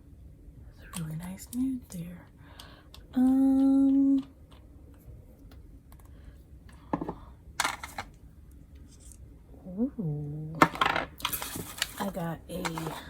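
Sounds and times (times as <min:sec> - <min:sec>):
packaging rustling: 0:11.2 - 0:13.0.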